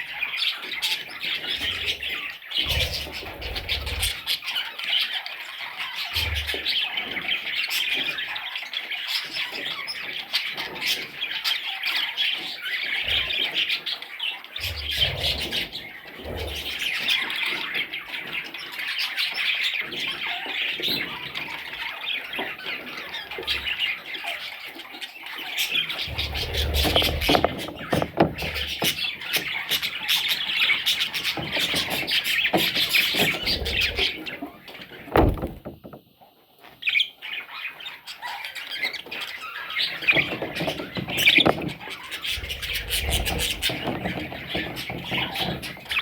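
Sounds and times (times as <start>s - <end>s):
budgerigars chattering and squawking: 0.0s - 36.0s, 36.6s - 46.0s
low thumps: 35.1s - 36.1s.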